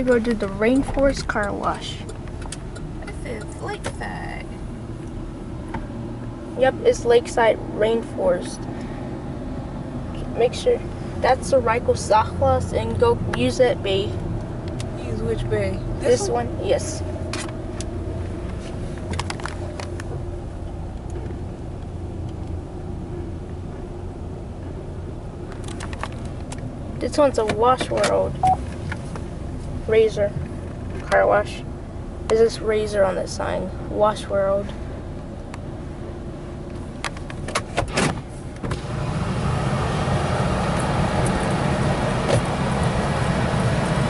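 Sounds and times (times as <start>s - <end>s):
car engine hum from inside: 0.0s - 44.0s
sharp clicks in a car: 0.1s - 4.1s, 14.2s - 15.0s, 17.2s - 20.3s, 20.9s - 22.6s, 25.5s - 26.7s, 27.4s - 29.3s, 36.6s - 38.9s.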